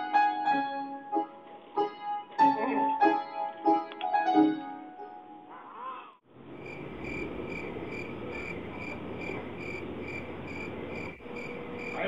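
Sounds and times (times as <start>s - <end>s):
cricket chirping: 6.4s - 12.0s.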